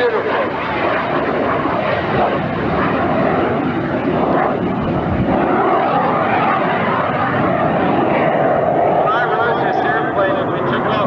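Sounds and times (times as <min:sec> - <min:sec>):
jet engine roaring: 0:00.0 - 0:11.0.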